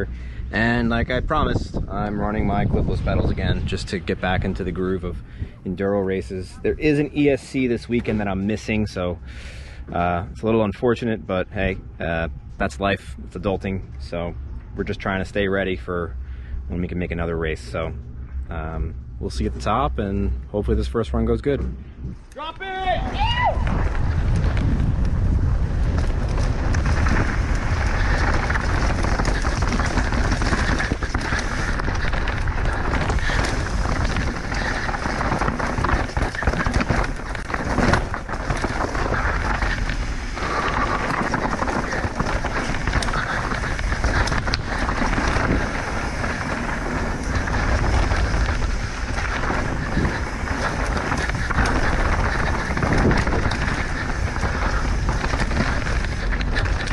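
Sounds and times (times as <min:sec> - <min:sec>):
tyres on dirt and rock: 0:22.4 - 0:56.9
bike clattering and knocking: 0:23.7 - 0:56.9.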